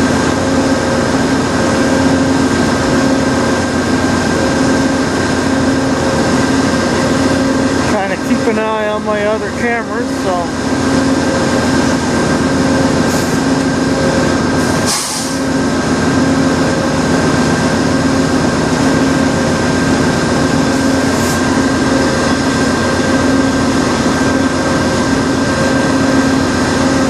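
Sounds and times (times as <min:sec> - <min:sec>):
diesel locomotive running: 0:00.0 - 0:27.0
air hiss: 0:14.6 - 0:15.5.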